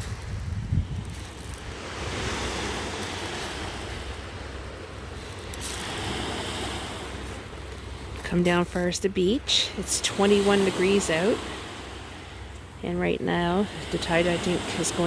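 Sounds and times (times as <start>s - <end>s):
wind rumble on microphone: 0.0s - 9.4s
ocean waves breaking on beach: 0.0s - 15.0s.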